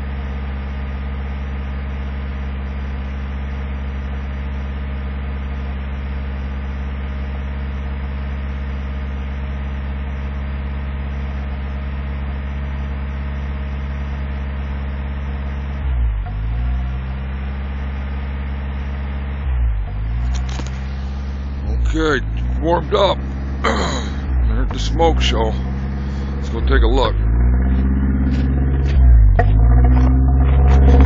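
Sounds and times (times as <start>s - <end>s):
truck engine idling: 0.0s - 31.0s.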